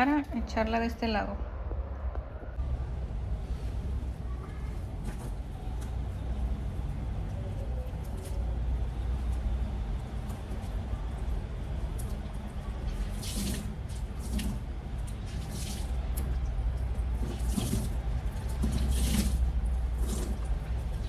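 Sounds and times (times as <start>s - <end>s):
steady low hum: 0.0s - 21.0s
water splashing into tub: 11.6s - 21.0s.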